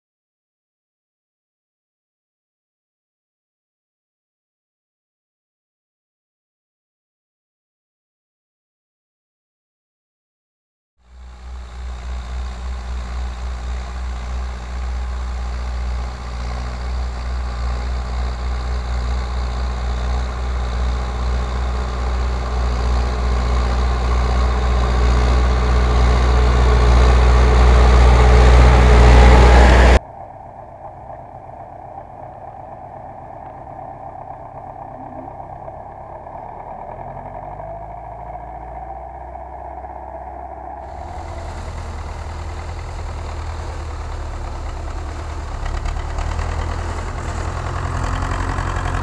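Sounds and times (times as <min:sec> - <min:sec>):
tractor diesel engine rumbling: 0:11.0 - 0:49.0.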